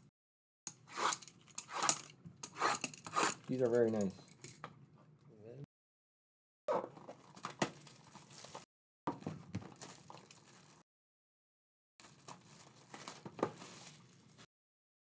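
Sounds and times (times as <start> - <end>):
card pack wrapping crinkling: 12.0 - 14.4.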